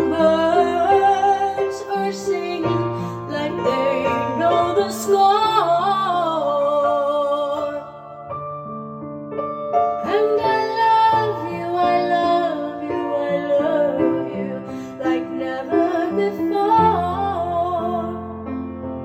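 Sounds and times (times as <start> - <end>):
woman singing slow ballad: 0.0 - 8.2, 10.0 - 18.3.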